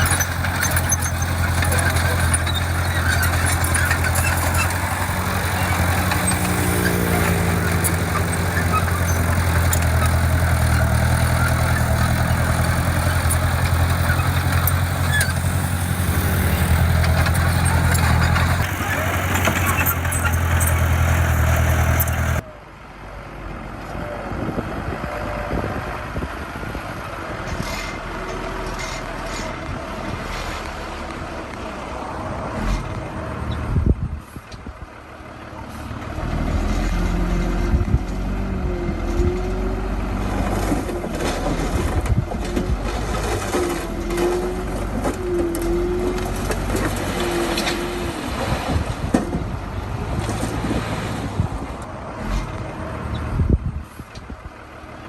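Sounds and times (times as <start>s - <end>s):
short squeals: 0.0s - 22.4s
heavy diesel engine running: 0.0s - 30.2s.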